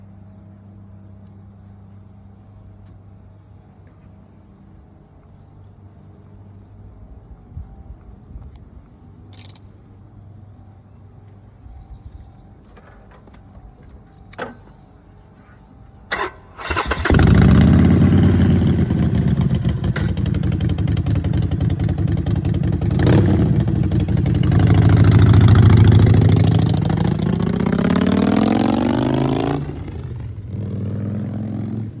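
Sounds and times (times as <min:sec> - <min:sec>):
starter clicks: 0:09.3 - 0:09.8
motorcycle engine running: 0:16.7 - 0:32.0.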